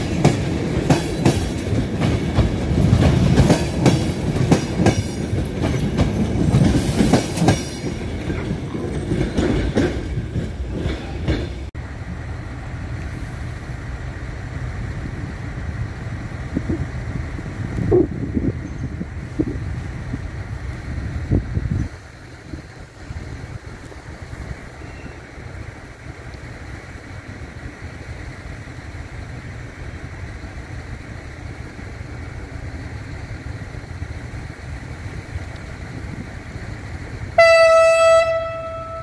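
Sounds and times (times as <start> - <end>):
train wheels clicking over rail joints: 0.0 - 11.7.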